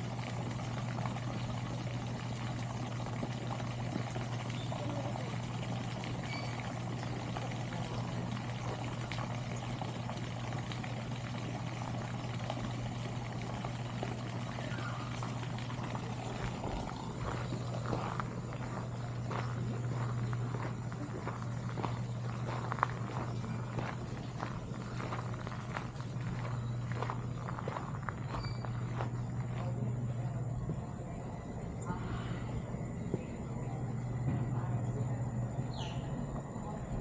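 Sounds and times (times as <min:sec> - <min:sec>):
water pouring and trickling: 0:00.0 - 0:29.6
low hum: 0:00.0 - 0:37.0.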